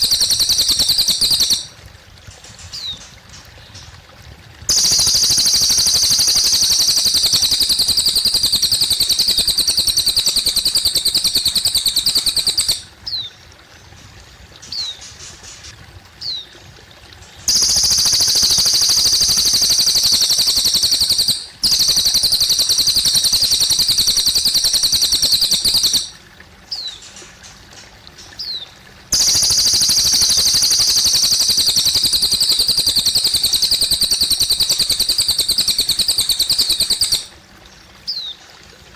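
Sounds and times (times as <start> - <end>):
bird singing high trills: 0.0 - 1.7, 4.7 - 13.3, 17.5 - 27.0, 29.2 - 37.3
trickling water: 0.0 - 38.9.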